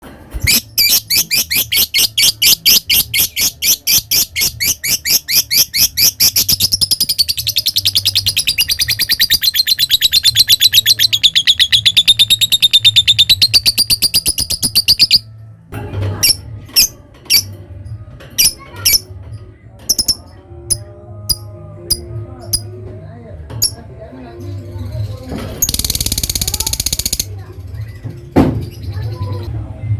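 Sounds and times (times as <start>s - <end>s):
lovebird chirping and trilling: 0.4s - 15.3s, 16.2s - 17.5s, 18.4s - 19.1s, 19.9s - 20.3s, 25.6s - 27.3s.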